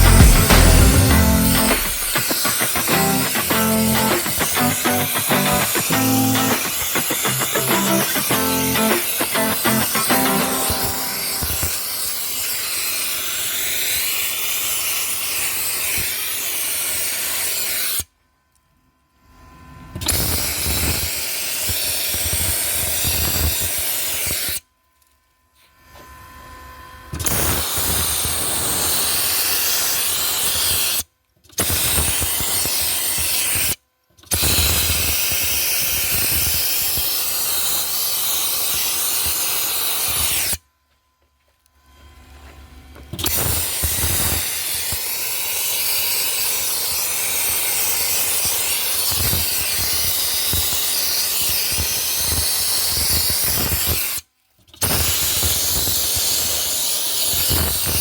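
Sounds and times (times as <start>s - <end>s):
dry ice blaster hissing: 0.0s - 12.6s.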